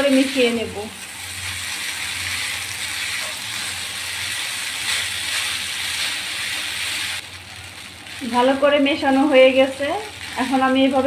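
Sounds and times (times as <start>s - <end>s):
food sizzling in oil: 0.0s - 11.0s
scraping in frying pan: 1.0s - 7.2s.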